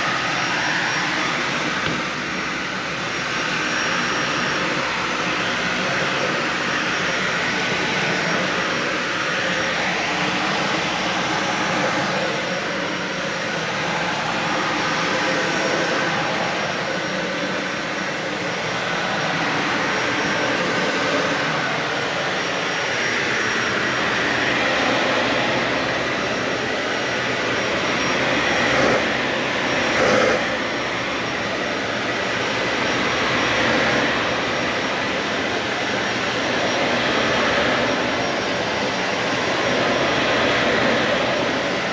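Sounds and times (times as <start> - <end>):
vacuum cleaner running on carpet: 0.0 - 41.9.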